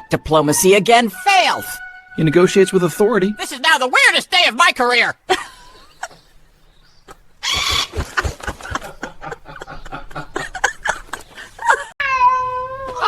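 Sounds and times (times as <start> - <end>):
cat hissing: 5.3 - 9.7.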